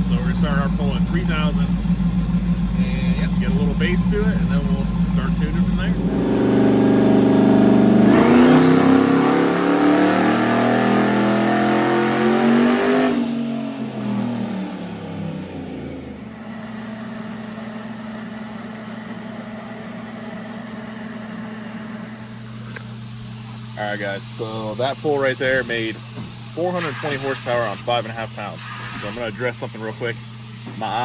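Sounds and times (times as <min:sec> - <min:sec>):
truck engine revving: 0:00.0 - 0:16.4
turbo whistle: 0:26.5 - 0:29.3.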